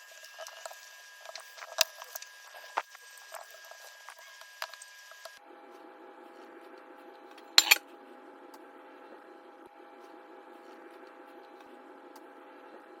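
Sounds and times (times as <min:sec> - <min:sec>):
cast iron cookware clanking: 0:07.6 - 0:07.8.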